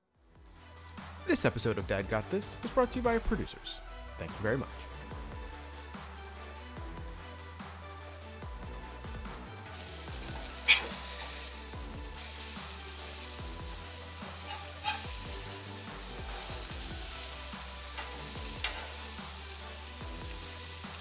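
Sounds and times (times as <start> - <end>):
food sizzling on a griddle: 9.7 - 21.0.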